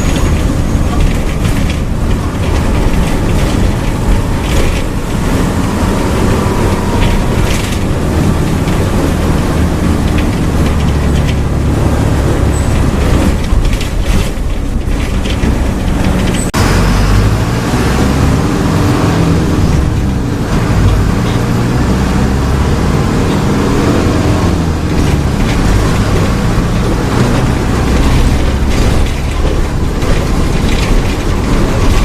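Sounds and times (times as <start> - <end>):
bus diesel engine droning: 0.0 - 32.0.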